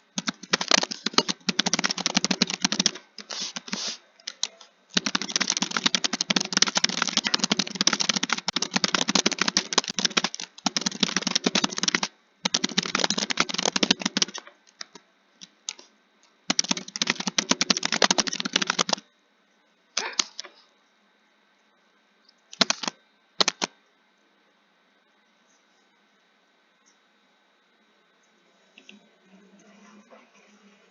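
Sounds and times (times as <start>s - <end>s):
fast typing on keyboard: 0.2s - 15.0s, 16.5s - 19.0s, 22.5s - 23.8s.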